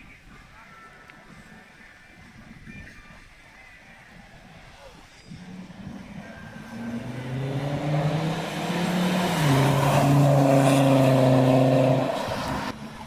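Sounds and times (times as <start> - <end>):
car driving past: 5.4 - 13.0.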